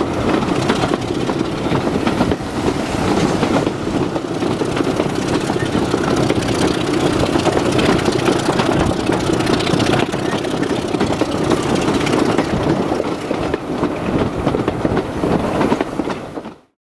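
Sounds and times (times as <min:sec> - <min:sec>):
diesel locomotive engine: 0:00.0 - 0:16.7.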